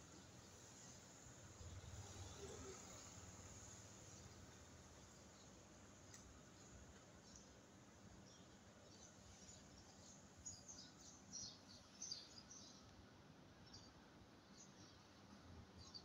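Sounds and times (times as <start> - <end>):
low hum of street ambience: 0.0 - 16.0
small birds chirping: 0.2 - 13.0.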